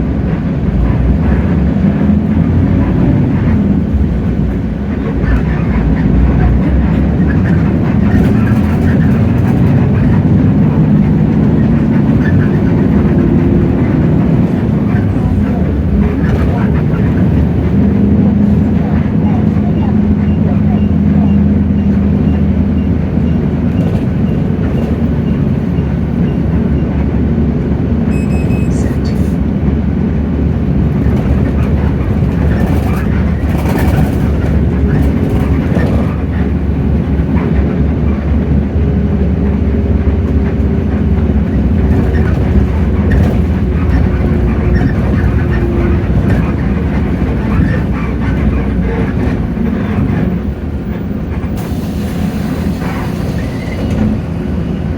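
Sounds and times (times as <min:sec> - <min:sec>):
bus diesel engine running: 0:00.0 - 0:54.9
road rumble: 0:00.0 - 0:54.9
brief high tone: 0:28.1 - 0:29.2.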